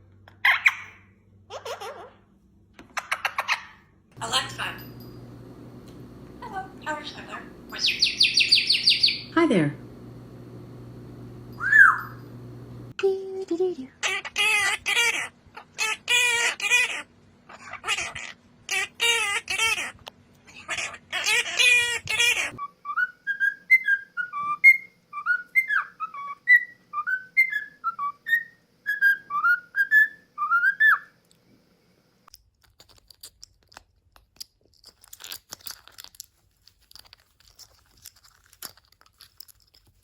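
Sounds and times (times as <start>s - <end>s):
parrot whistling a tune: 11.6s - 12.2s, 22.6s - 31.1s.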